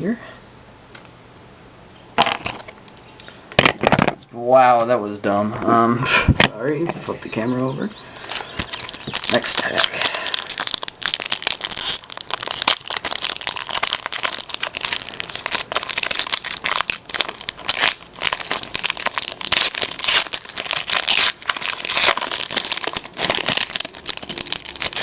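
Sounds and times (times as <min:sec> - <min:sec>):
wrapper crinkling and tearing: 0:08.3 - 0:25.0.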